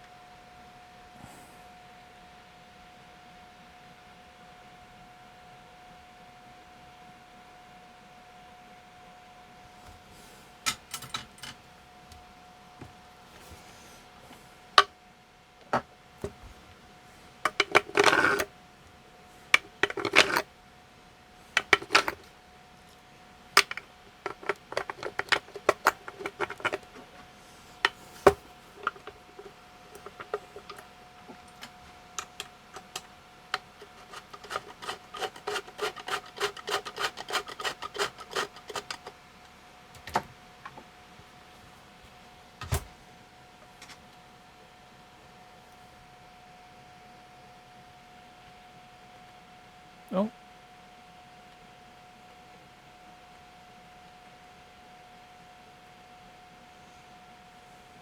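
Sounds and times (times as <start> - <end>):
hands handling a handheld device: 17.5 - 18.5, 19.6 - 20.4, 21.6 - 22.3, 23.6 - 39.2.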